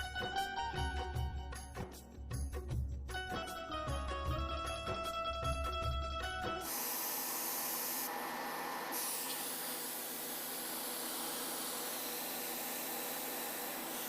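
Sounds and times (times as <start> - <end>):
music: 0.0 - 8.0.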